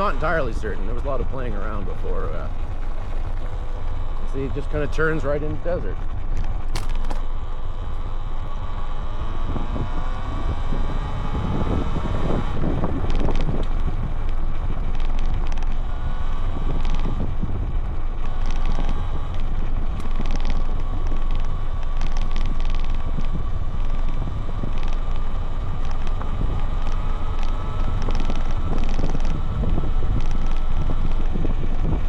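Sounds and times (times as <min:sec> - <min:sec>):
wind buffeting microphone: 0:00.0 - 0:32.0
electric motor whine: 0:02.0 - 0:32.0
clicks and rattles: 0:06.0 - 0:07.3, 0:13.0 - 0:15.8, 0:18.2 - 0:29.4.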